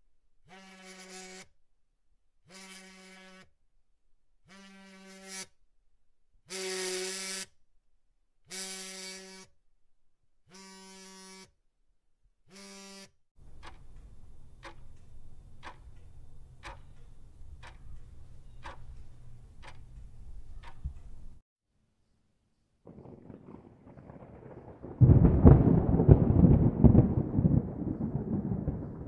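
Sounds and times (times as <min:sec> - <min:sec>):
buzzer buzzing: 0:00.5 - 0:01.5, 0:02.5 - 0:03.5, 0:04.5 - 0:05.5, 0:06.5 - 0:07.5, 0:08.5 - 0:09.5, 0:10.4 - 0:11.6, 0:12.5 - 0:13.2
sharp regular ticks: 0:13.4 - 0:21.4.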